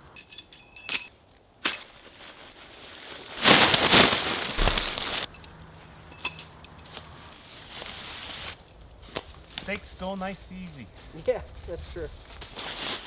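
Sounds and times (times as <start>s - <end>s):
metal tent stakes clinking: 0.0s - 2.0s, 4.6s - 7.1s, 8.5s - 9.3s
loud rustling: 2.7s - 5.4s.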